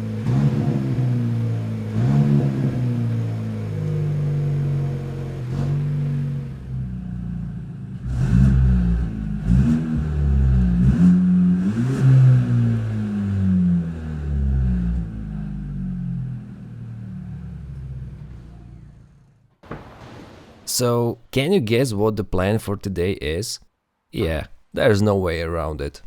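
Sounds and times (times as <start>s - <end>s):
car engine revving through broken exhaust: 0.0s - 18.9s.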